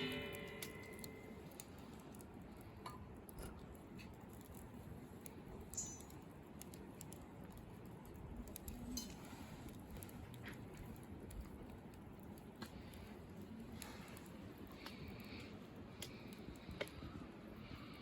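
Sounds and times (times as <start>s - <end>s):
light clinks: 5.7s - 6.3s, 8.7s - 9.4s.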